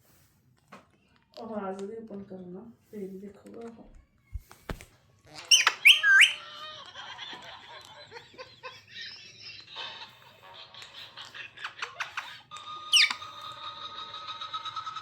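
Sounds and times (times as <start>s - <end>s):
parrot chattering: 5.4s - 6.5s, 12.9s - 13.3s
parrot squawking: 5.4s - 6.5s, 12.9s - 13.4s.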